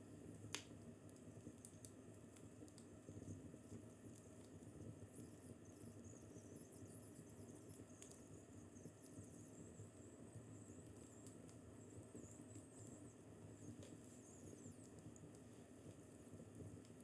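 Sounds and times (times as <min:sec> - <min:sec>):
wood fire crackling: 0:00.2 - 0:04.6
fire hissing squeaks: 0:04.5 - 0:16.7.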